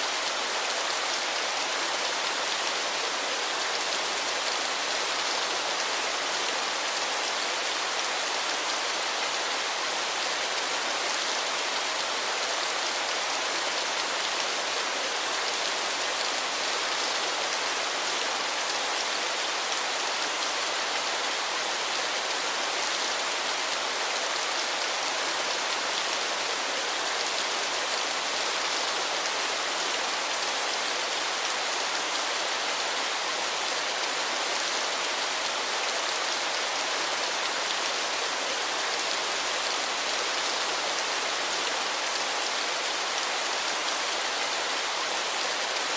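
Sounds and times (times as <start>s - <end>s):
waterfall rushing water: 0.0s - 45.9s.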